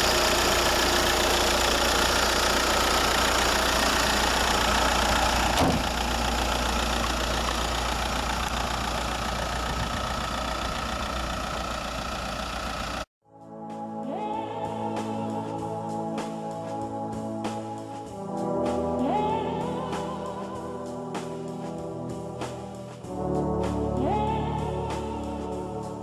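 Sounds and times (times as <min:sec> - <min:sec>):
diesel engine idling: 0:00.0 - 0:13.1.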